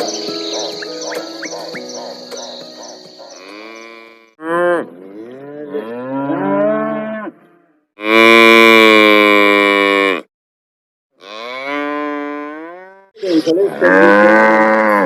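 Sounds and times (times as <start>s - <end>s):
cattle mooing: 3.2s - 10.2s, 11.2s - 15.0s.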